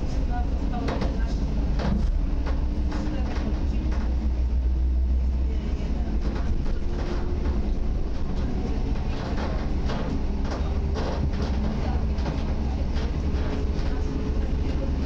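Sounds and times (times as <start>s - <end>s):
train wheels rumbling on rails: 0.0s - 15.0s
wheels clacking over track: 5.8s - 15.0s.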